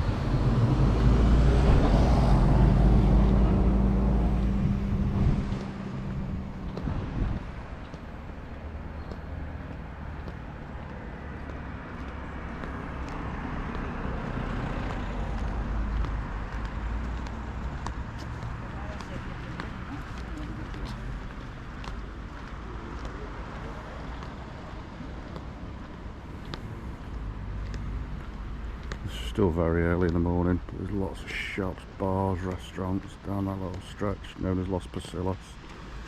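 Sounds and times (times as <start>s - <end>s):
vehicle engine passing: 0.0s - 21.7s
street traffic: 0.0s - 36.0s.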